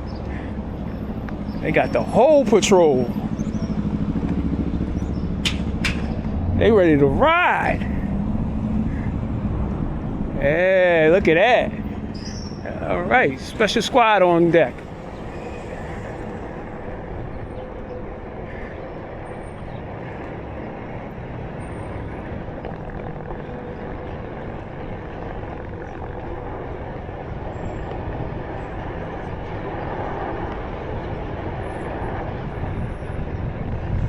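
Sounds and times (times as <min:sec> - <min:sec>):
wind noise: 0:25.4 - 0:34.0.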